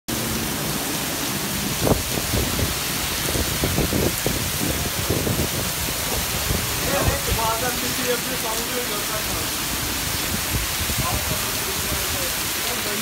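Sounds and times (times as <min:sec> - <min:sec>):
heavy rain hissing: 0:00.1 - 0:13.0
low thuds and splashes: 0:01.6 - 0:07.6.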